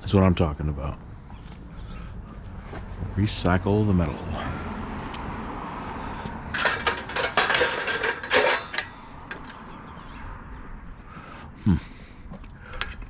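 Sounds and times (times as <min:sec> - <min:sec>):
scrap metal clattering: 0:06.5 - 0:09.6.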